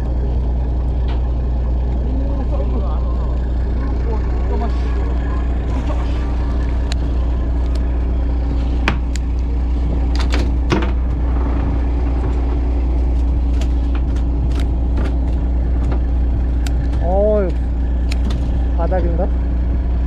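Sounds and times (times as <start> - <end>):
boat engine humming: 0.0 - 20.0
sharp clicks and knocks: 8.8 - 17.1.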